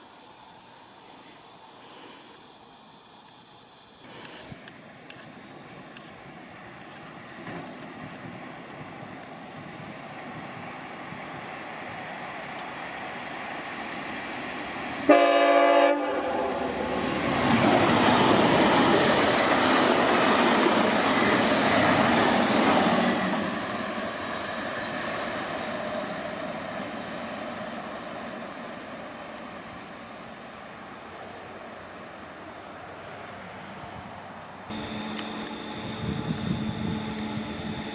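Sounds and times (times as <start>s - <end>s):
train passing: 0.0s - 37.9s
train horn blast: 15.1s - 17.0s.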